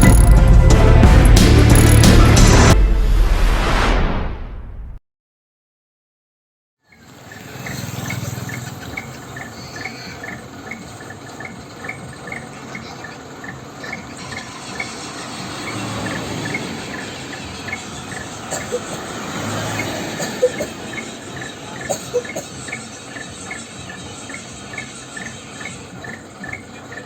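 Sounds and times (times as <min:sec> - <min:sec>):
night insects chirping: 0:06.9 - 0:27.0.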